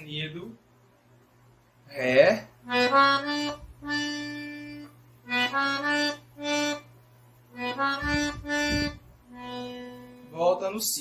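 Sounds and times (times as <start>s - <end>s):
accordion slow melody: 2.6s - 10.5s.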